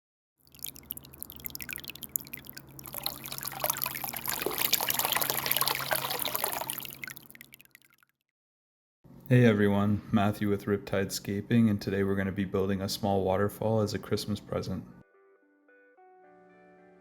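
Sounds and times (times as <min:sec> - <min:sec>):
water trickling over stone: 0:00.4 - 0:08.1.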